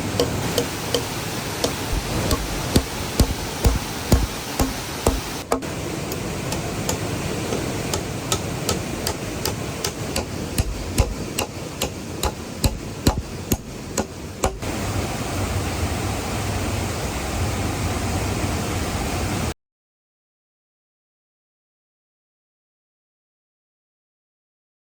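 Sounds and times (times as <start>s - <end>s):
waterfall rushing: 0.0s - 19.5s
hammer strikes on wood: 0.2s - 5.7s, 6.5s - 14.7s.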